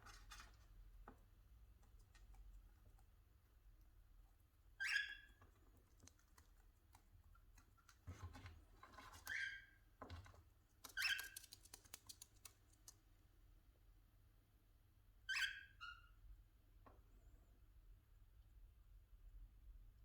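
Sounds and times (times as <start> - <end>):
beaks pecking and tapping: 1.1 - 13.0.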